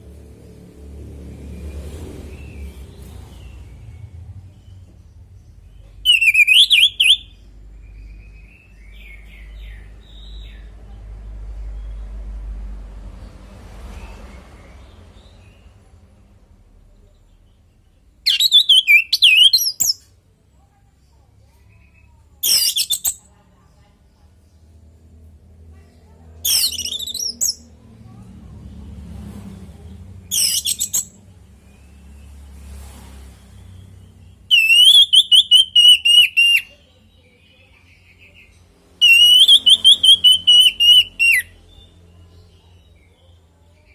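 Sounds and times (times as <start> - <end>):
thrush singing whistled notes: 6.0 - 10.4, 18.3 - 20.0, 30.3 - 32.4, 33.6 - 36.8, 39.0 - 41.9.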